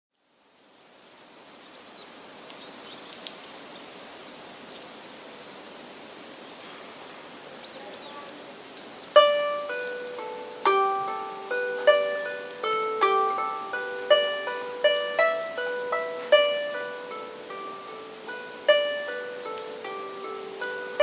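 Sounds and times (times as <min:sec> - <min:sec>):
lyre strings plucked: 0:09.2 - 0:21.0
bird chirps: 0:14.4 - 0:21.0.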